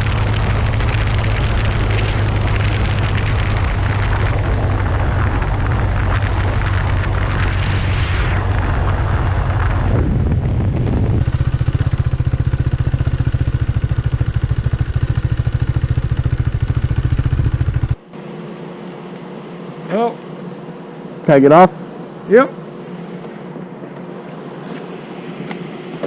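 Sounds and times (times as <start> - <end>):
wind and road noise: 0.0 - 18.1
motorcycle engine idling: 11.0 - 18.0.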